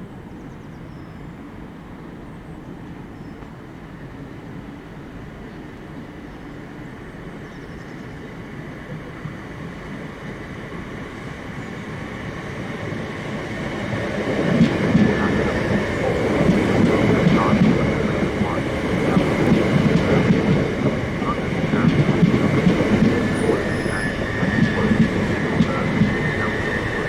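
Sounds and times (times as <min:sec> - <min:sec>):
train rumbling: 0:03.7 - 0:27.0
train wheels clicking over rails: 0:13.0 - 0:27.0.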